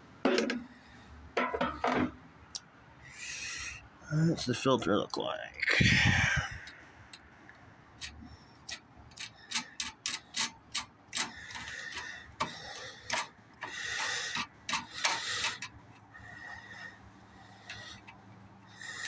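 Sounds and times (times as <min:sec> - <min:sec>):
scraping: 0:08.0 - 0:16.8.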